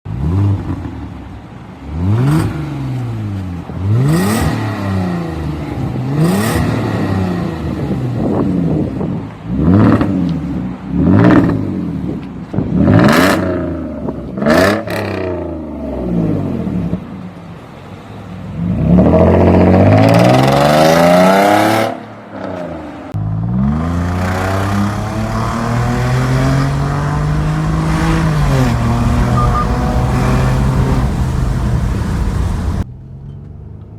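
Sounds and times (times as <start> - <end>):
car engine revving: 23.4 - 32.9.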